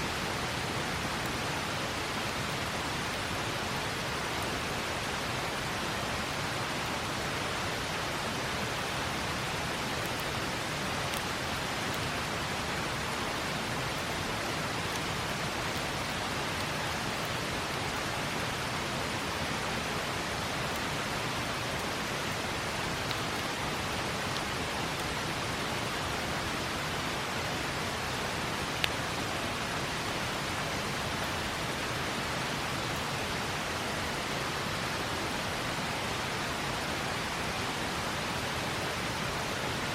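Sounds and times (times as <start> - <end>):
campfire crackling: 0.0 - 27.1
river water rushing: 0.0 - 39.9.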